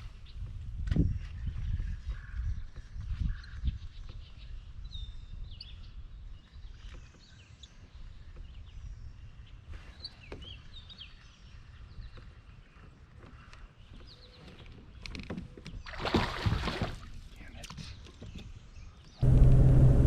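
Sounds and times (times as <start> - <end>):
low steady rumble: 19.2 - 20.0
soft low thumps: 19.2 - 20.0.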